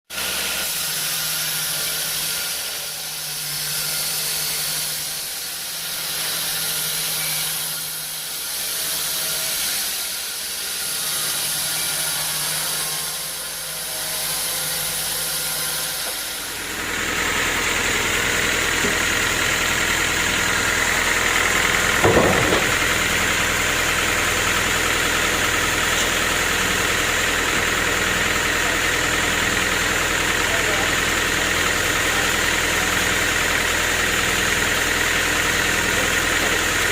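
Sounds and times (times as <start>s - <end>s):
steady machine drone: 0.3s - 36.9s
short knock: 22.0s - 22.8s.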